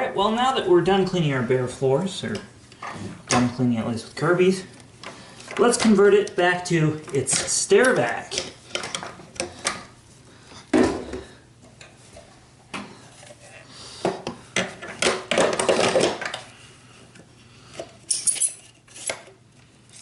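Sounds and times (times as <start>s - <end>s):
vacuum parts knocking and clattering: 14.0s - 16.5s.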